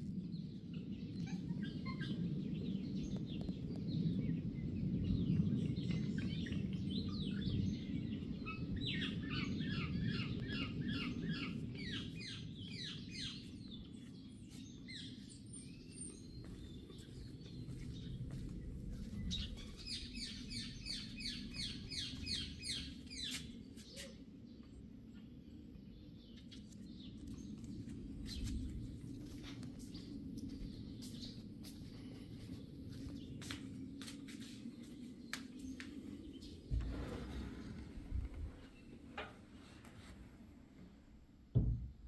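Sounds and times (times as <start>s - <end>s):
low rumbling background noise: 0.0s - 42.0s
songbird singing: 0.2s - 41.7s.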